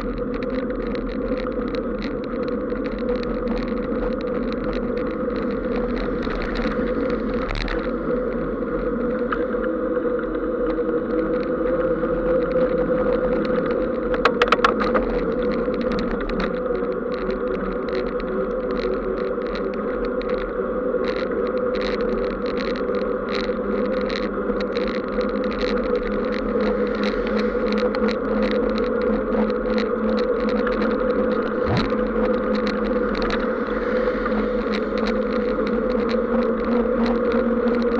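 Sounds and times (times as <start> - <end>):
vehicle road and wind noise: 0.0 - 37.9
steady low hum: 24.6 - 37.9.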